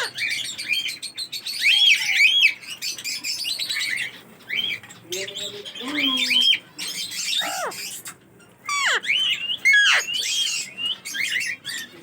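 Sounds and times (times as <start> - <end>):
parrots calling and chattering: 0.0 - 12.0.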